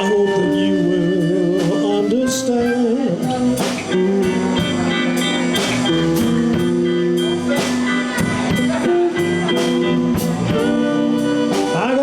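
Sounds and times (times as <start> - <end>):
bass guitar: 0.0 - 12.0
drum kit steady beat: 0.0 - 12.0
electric guitar held notes: 3.2 - 12.0.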